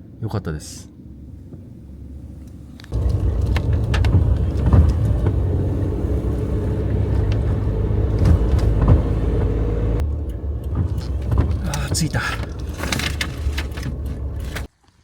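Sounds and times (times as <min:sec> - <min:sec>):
car engine and road rumble: 0:00.0 - 0:14.7
knocks and rattles: 0:03.0 - 0:14.7.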